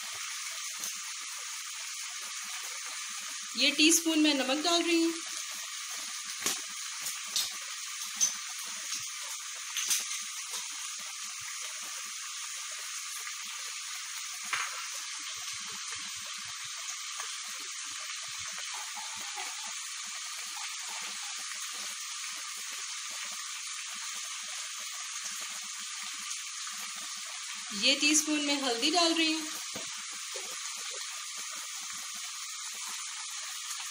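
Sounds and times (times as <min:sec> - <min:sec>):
chicken sizzling in a pot: 0:00.0 - 0:33.9.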